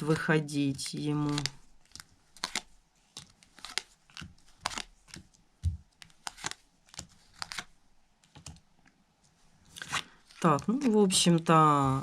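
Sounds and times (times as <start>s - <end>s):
playing cards snapping and flicking: 1.2s - 7.7s.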